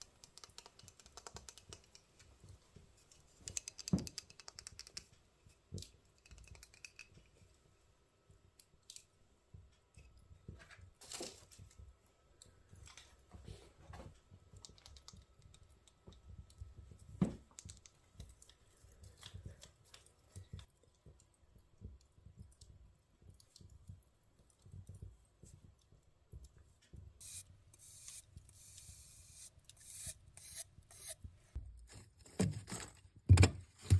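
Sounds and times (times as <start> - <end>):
small clicks and taps: 0.0 - 7.6, 11.5 - 27.2.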